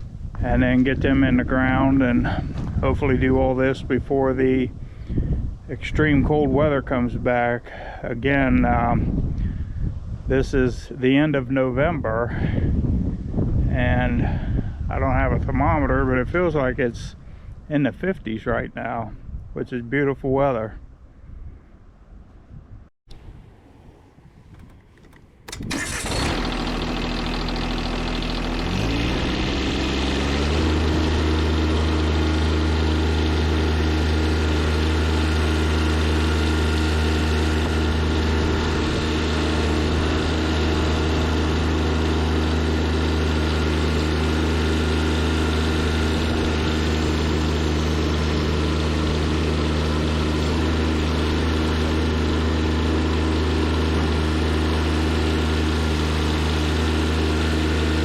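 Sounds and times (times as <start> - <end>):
tractor engine starting and running: 0.0 - 8.8, 24.2 - 58.0.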